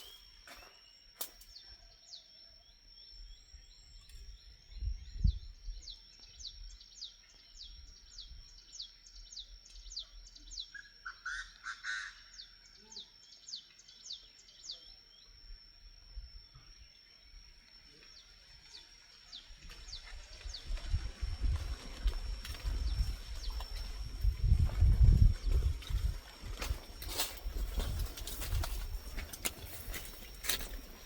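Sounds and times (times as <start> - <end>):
lower fuller bird call: 4.4 - 15.3.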